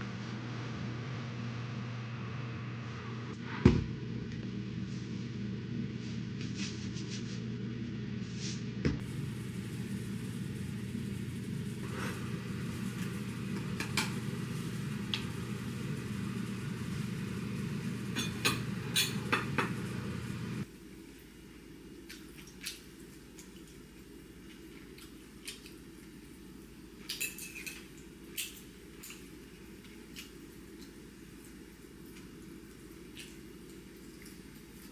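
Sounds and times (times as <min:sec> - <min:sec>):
steady low hum: 0:00.0 - 0:22.1
dishes and utensils clinking: 0:18.1 - 0:19.9, 0:27.1 - 0:29.3.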